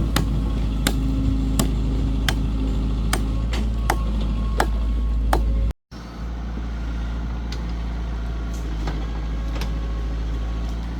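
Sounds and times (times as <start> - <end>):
heavy vehicle engine droning: 0.0 - 10.9
sharp knocks: 0.2 - 2.5.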